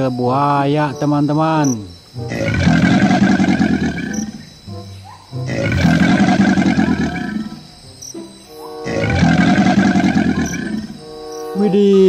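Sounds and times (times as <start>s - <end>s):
animal roar: 2.3s - 4.5s, 5.4s - 7.7s, 8.7s - 12.0s.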